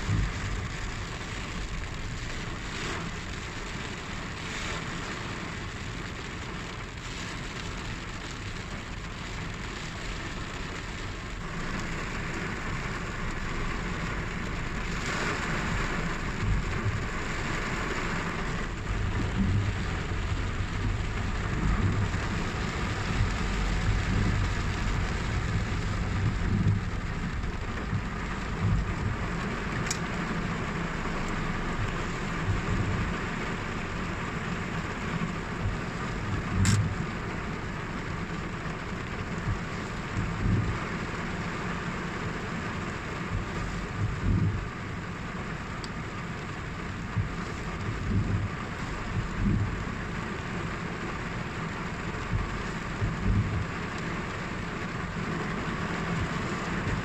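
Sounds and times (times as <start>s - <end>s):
steady rainfall: 0.0s - 57.0s
low rumble: 11.0s - 40.9s, 43.2s - 45.0s, 52.1s - 53.8s.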